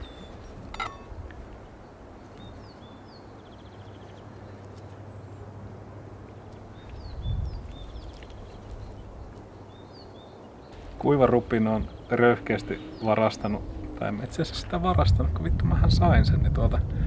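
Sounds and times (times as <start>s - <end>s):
songbird singing with trill: 0.0s - 5.4s, 6.3s - 14.2s
outdoor background noise: 0.0s - 17.0s
steady low hum: 3.2s - 17.0s.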